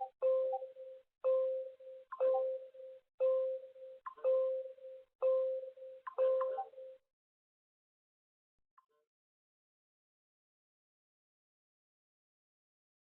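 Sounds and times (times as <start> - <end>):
electronic alarm beeping: 0.0 - 7.0.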